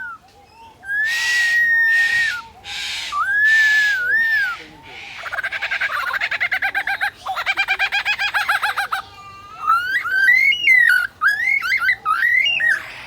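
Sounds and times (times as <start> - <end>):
lyrebird whistles and rasps: 0.0 - 8.9, 9.6 - 13.0
bird chirping rapidly: 0.9 - 9.0.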